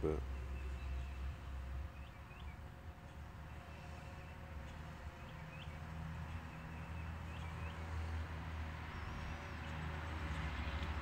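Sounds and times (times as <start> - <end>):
low outdoor rumble: 0.0 - 11.0
bird chirps: 0.1 - 8.0.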